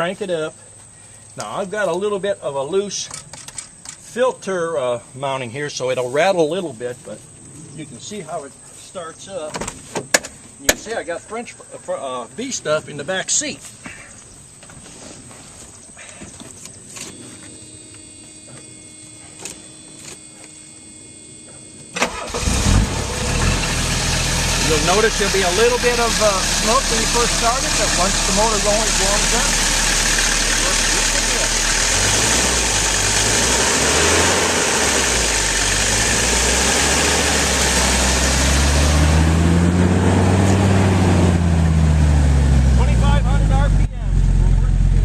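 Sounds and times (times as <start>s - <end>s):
faint steady tone: 15.9s - 22.0s
starter cranking engine: 22.0s - 38.7s.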